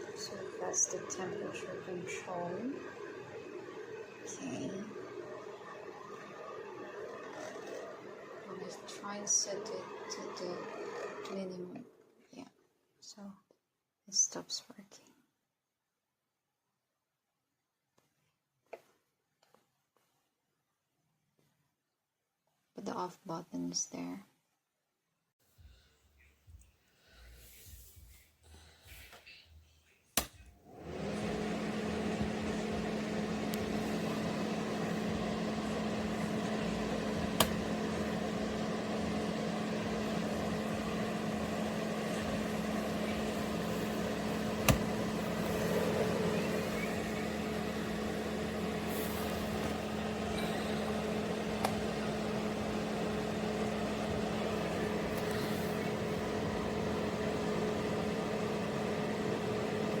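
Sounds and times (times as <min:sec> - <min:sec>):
fan heater whoosh and hum: 0:30.2 - 1:00.0.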